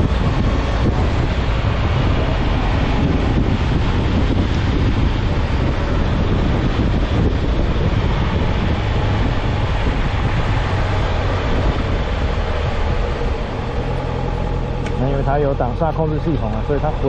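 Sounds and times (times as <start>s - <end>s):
motorcycle engine at speed: 0.0s - 17.0s
wind rushing on microphone: 0.0s - 17.0s.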